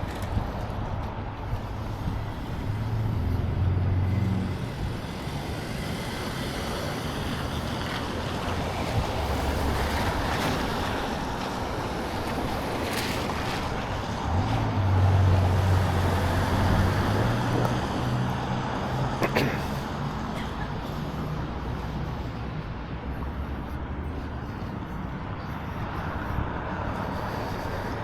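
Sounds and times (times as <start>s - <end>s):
wind buffeting microphone: 0.0s - 19.2s
cars passing: 0.0s - 28.0s.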